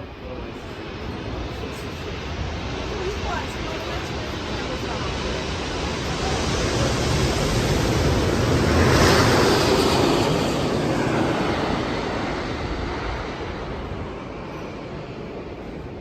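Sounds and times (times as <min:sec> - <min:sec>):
plane flying low overhead: 0:00.0 - 0:16.0.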